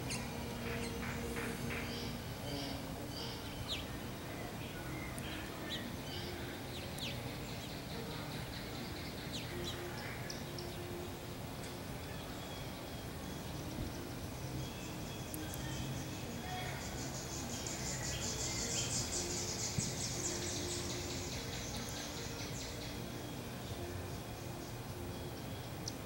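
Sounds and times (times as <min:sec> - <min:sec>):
low outdoor background noise: 0:00.0 - 0:26.0
wild birds chirping: 0:00.0 - 0:26.0.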